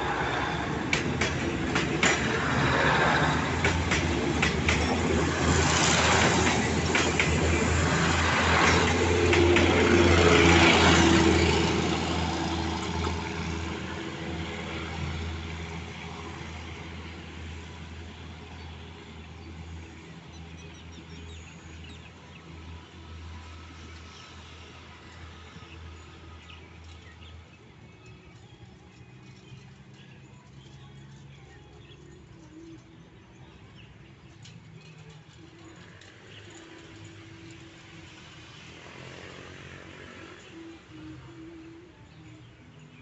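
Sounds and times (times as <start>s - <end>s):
train wheels clattering on rails: 0.0s - 17.5s.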